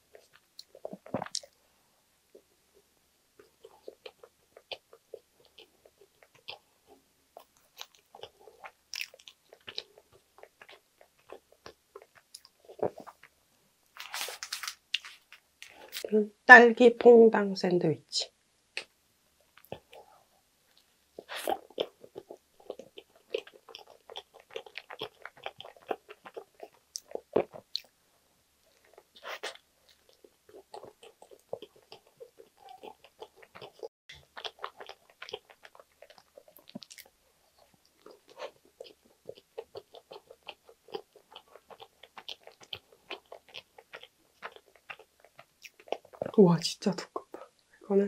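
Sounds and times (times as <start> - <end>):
close biting and chewing: 3.7 - 13.3, 14.0 - 16.0, 21.2 - 27.9, 28.7 - 46.3.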